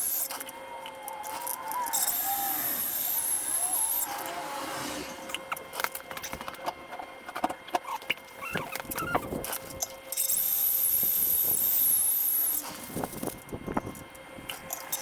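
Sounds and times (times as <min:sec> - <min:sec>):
power tool whining: 0:00.0 - 0:06.6.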